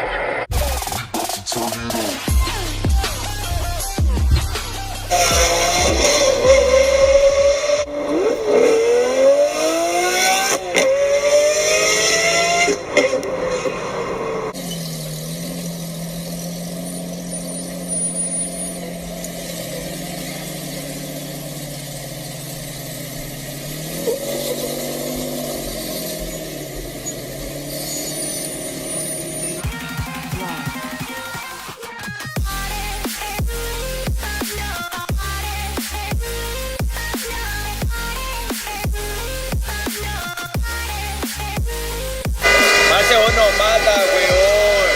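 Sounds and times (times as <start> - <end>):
car engine revving hard: 1.9 - 31.0, 41.5 - 44.9
engine running low: 2.3 - 31.0, 32.4 - 44.9.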